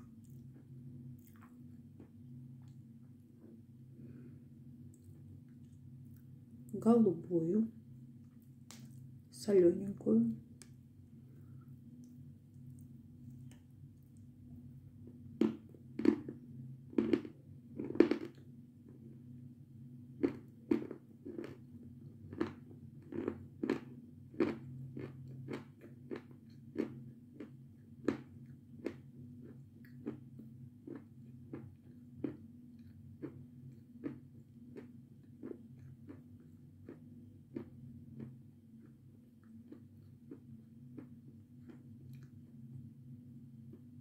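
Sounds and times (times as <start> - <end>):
person chewing crunchy food: 0.0 - 4.2, 15.3 - 19.2, 20.1 - 42.5
low steady hum: 0.0 - 44.0.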